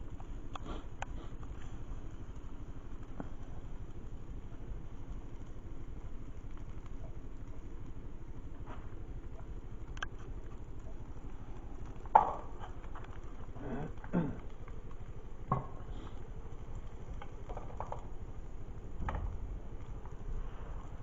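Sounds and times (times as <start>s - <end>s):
low background rumble: 0.0s - 21.0s
objects knocking and clattering: 17.3s - 18.1s.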